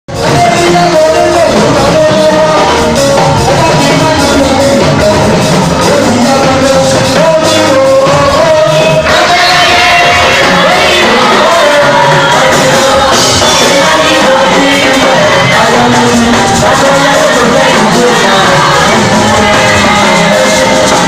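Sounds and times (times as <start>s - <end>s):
instrumental accompaniment: 0.1s - 21.0s.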